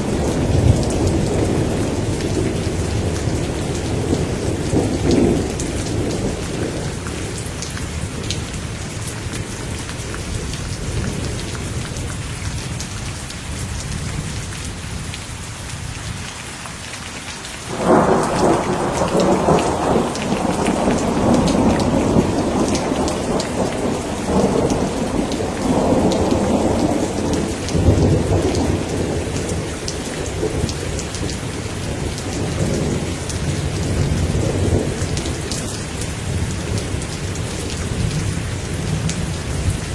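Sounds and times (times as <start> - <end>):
thunder rumbling: 0.0 - 8.5, 17.7 - 39.9
steady rain falling: 0.0 - 39.9
loud thunderclap: 17.7 - 29.7.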